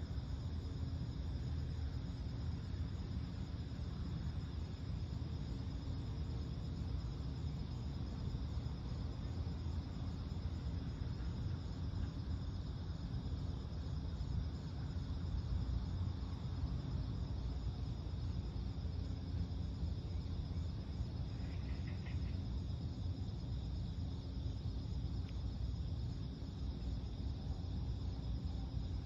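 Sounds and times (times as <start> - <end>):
constant low rumble: 0.0 - 29.0
night insects trilling: 0.0 - 29.0.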